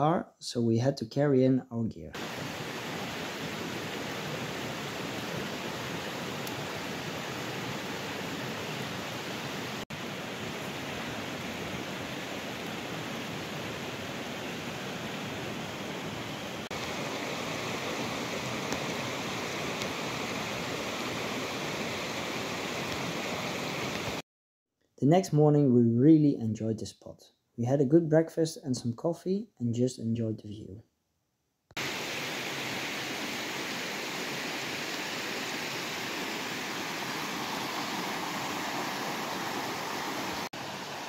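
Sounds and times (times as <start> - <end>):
steady rain falling: 2.2 - 24.2, 31.8 - 41.0.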